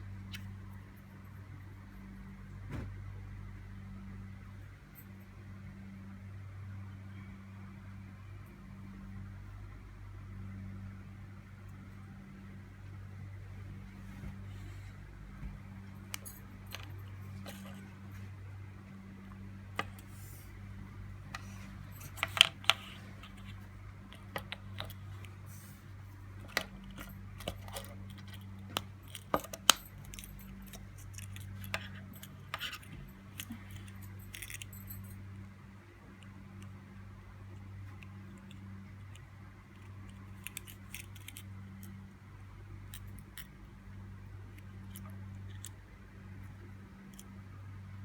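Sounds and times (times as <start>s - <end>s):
steady low hum: 0.0s - 48.0s
key fob plastic clicks and snaps: 26.5s - 34.9s, 39.8s - 42.0s.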